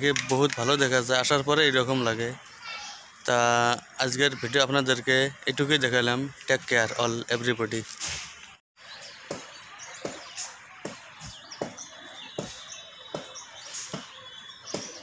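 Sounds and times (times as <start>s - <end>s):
outdoor background noise: 0.0s - 15.0s
small birds chirping: 0.0s - 15.0s.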